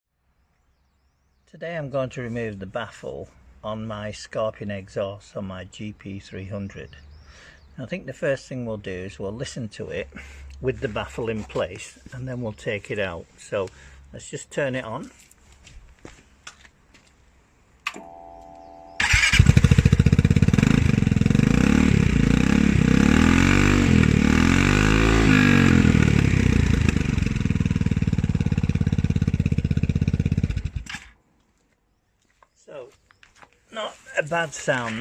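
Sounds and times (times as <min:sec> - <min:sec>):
starter whir: 0:19.0 - 0:22.2
scooter engine revving: 0:19.0 - 0:31.2.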